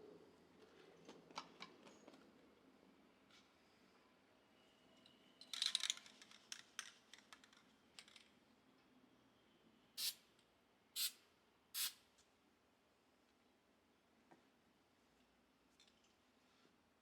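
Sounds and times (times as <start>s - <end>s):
aerosol spray: 11.0s - 11.2s, 11.8s - 12.0s.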